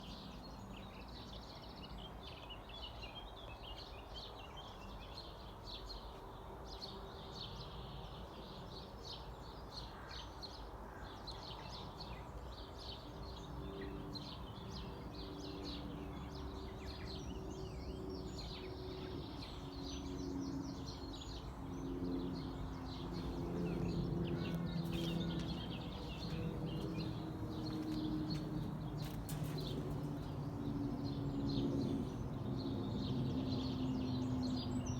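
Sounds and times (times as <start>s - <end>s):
songbirds singing and chirping: 0.0s - 34.9s
low droning tones: 22.0s - 32.6s.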